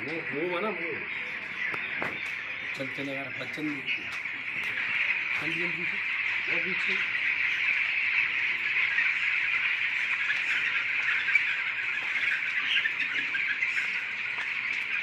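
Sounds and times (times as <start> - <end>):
chickens cheeping and calling: 0.0 - 15.0.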